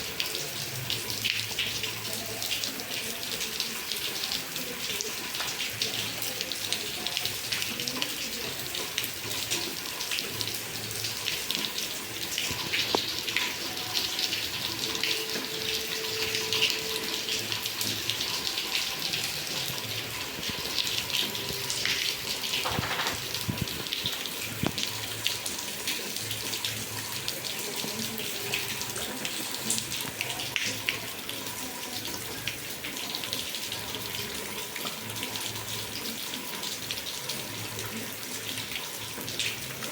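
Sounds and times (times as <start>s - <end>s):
heavy rain splashing: 4.6s - 26.4s.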